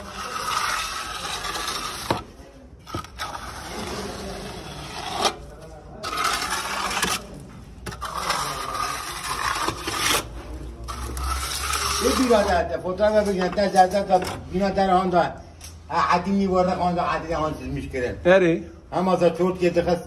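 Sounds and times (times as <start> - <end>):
trowel scraping wet concrete: 0.0 - 14.5.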